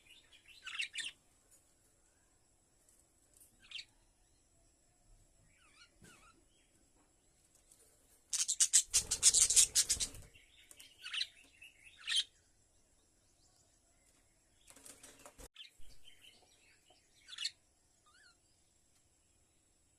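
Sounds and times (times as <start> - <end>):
bird chirps: 0.0 - 1.2, 5.4 - 6.8, 8.3 - 18.7
bird wings flapping: 9.0 - 10.3, 14.6 - 15.5.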